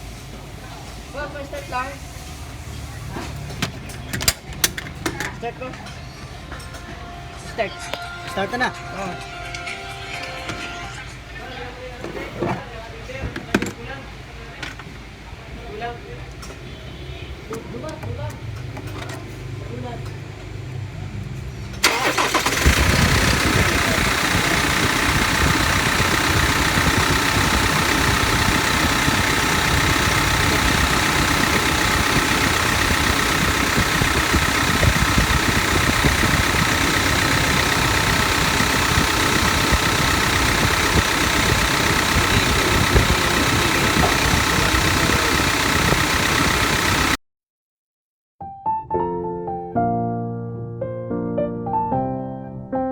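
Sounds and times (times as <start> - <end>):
diesel engine idling: 16.9 - 47.2.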